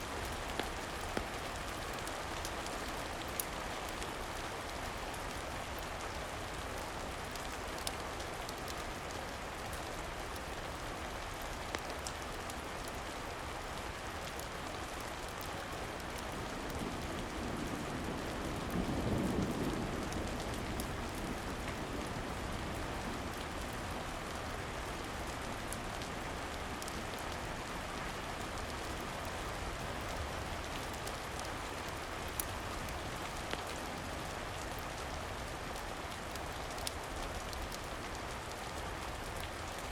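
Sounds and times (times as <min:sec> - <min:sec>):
rain falling on a surface: 0:00.0 - 0:39.9
low rumble of thunder: 0:16.3 - 0:25.3.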